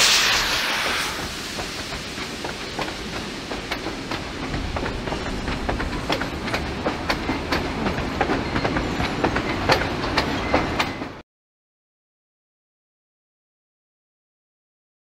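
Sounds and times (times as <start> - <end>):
train rumble: 0.0 - 11.2
train wheels clicking over rail joints: 0.0 - 11.2.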